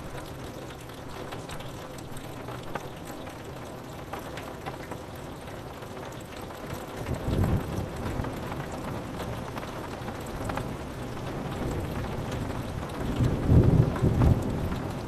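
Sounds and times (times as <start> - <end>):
rain on a window: 0.0 - 15.0
low rumble of thunder: 7.0 - 15.0.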